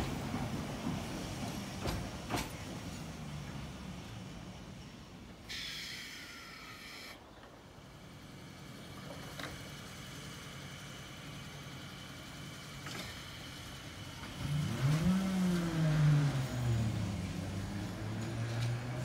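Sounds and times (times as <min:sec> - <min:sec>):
electric train whine: 0:00.0 - 0:14.8
train low rumble: 0:00.0 - 0:19.0.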